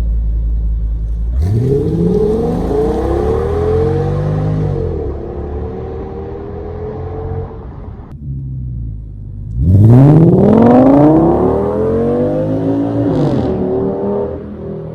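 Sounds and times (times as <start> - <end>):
car engine idling: 0.0 - 9.7
car engine revving: 1.1 - 14.9.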